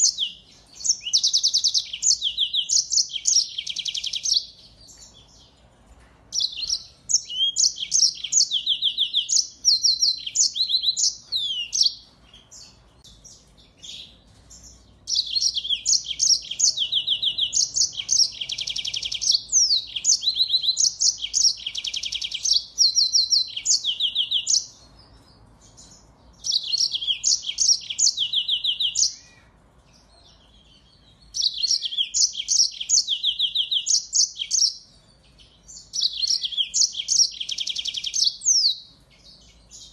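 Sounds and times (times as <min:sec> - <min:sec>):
finch song twittering: 0:00.0 - 0:05.6, 0:06.3 - 0:39.9.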